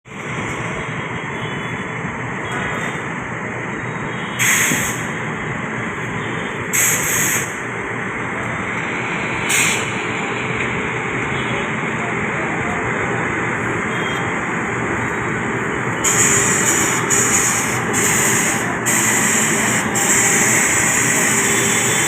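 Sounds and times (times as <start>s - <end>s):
air hisses: 4.4s - 5.1s, 9.5s - 10.0s
train rumbling: 4.4s - 22.0s.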